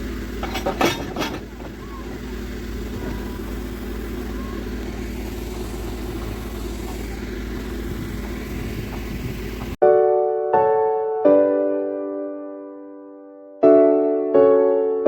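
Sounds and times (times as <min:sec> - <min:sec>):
locomotive machinery humming: 0:00.0 - 0:09.8.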